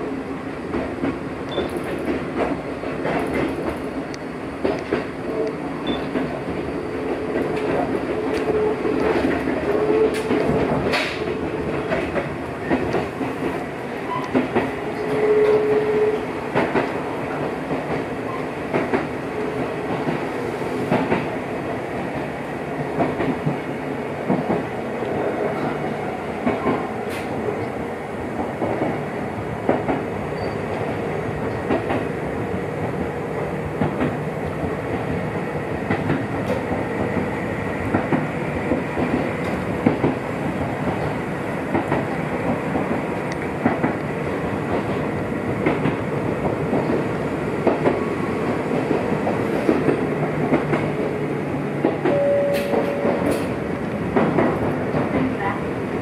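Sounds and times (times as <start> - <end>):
train running noise: 0.0 - 56.0
train wheels over rail joints: 0.6 - 56.0
short steady tone: 52.1 - 53.1.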